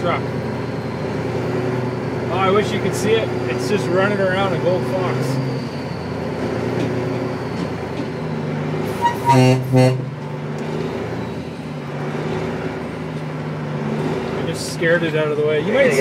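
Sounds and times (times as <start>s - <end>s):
dump truck engine running: 0.0s - 16.0s
truck horn blasts: 8.9s - 10.4s.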